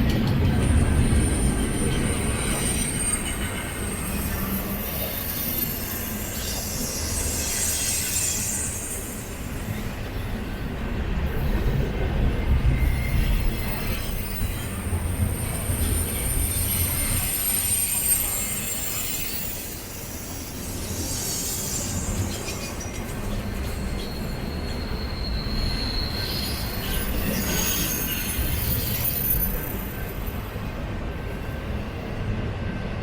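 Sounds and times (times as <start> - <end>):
freight train rumbling: 0.0 - 33.0
high-pitched wheel squeals: 12.7 - 30.3.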